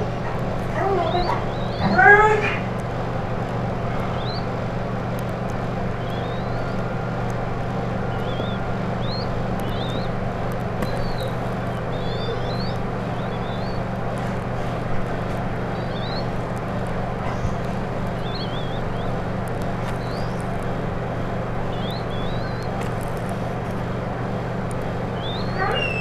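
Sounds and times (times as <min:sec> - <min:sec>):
low hum: 0:00.0 - 0:26.0
small birds chirping: 0:00.0 - 0:26.0.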